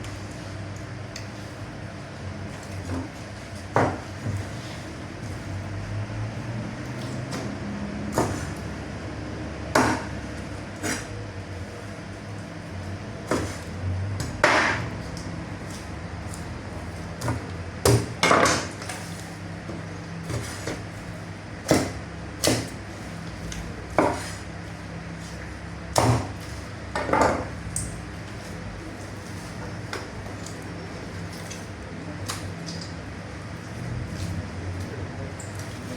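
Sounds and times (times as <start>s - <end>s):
cleaver chopping on wooden block: 9.7s - 10.2s, 21.6s - 22.8s.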